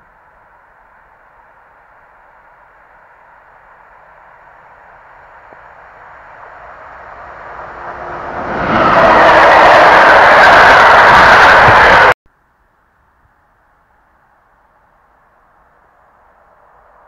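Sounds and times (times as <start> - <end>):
passenger train passing: 0.0 - 12.2.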